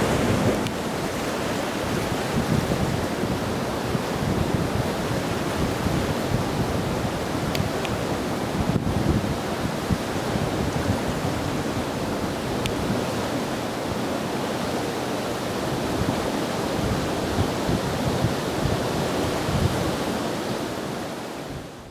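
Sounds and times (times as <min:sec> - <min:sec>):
river rushing: 0:00.0 - 0:08.6
wind buffeting microphone: 0:00.0 - 0:13.1.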